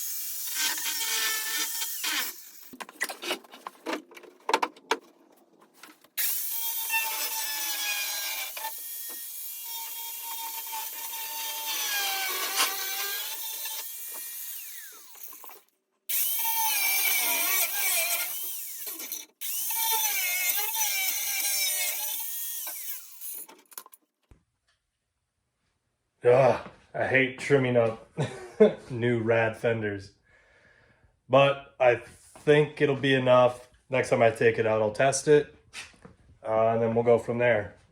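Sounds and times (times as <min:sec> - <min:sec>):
power tool cutting fiberglass: 0:00.0 - 0:03.1, 0:06.2 - 0:23.6.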